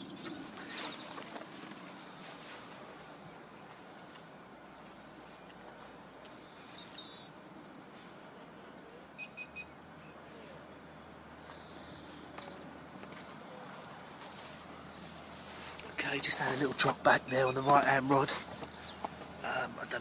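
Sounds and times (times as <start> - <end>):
faint lakeside ambience: 0.0 - 20.0
short high bird chirps: 9.2 - 9.8.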